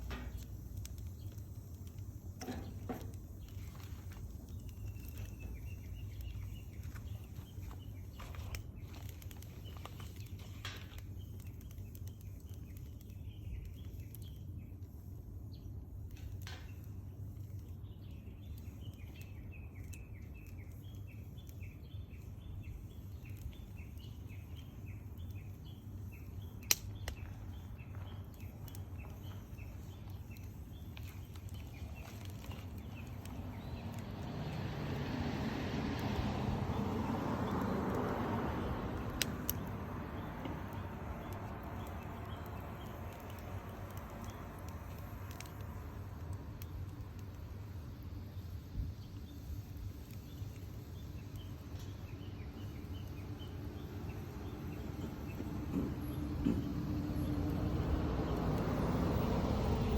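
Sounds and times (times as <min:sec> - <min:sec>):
small chirps: 0:00.0 - 0:35.0, 0:36.0 - 0:59.9
burning wood popping: 0:00.0 - 0:59.9.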